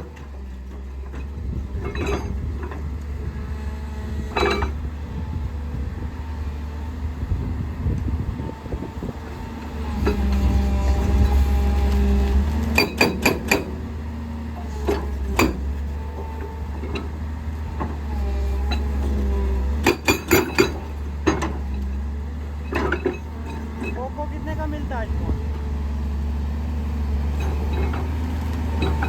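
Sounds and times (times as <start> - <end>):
diesel engine droning: 0.0 - 29.0
rock breaker metallic clanks: 12.8 - 13.8, 19.8 - 21.7.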